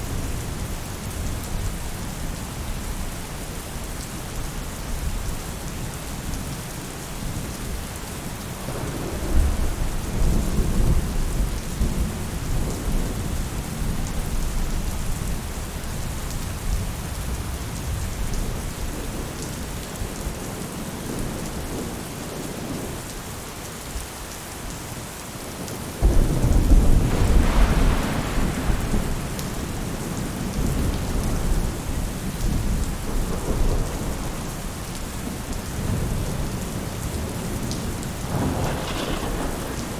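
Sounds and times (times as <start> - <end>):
rain on a roof: 0.0 - 39.9
thunder rumbling: 8.4 - 15.8, 26.0 - 39.9
loud thunderclap: 8.6 - 13.5, 26.0 - 34.5, 37.2 - 39.9.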